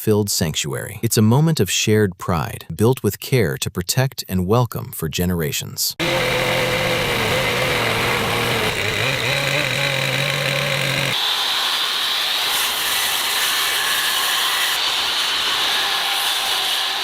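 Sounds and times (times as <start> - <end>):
high-pitched power tool whine: 6.0 - 17.0
power tool motor hum: 6.0 - 17.0.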